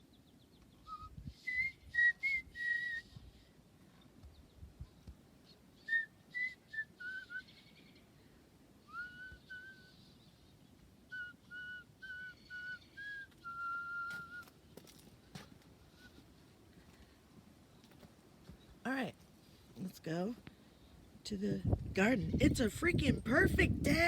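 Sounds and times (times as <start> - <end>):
person whistling a tune: 0.9 - 3.2, 5.9 - 7.5, 8.9 - 10.0, 11.1 - 14.5.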